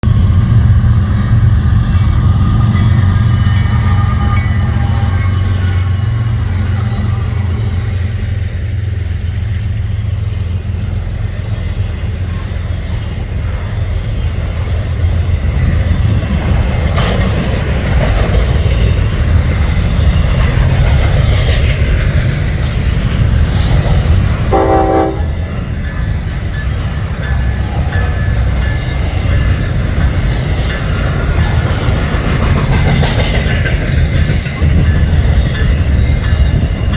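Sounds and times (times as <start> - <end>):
freight train rumbling on rails: 0.0 - 36.9
distant train horn: 3.6 - 8.2, 24.4 - 25.7.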